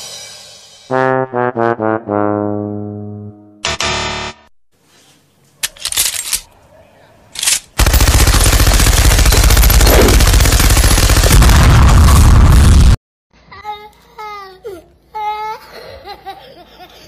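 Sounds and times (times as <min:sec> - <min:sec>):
machine gun automatic fire: 0:07.4 - 0:12.0.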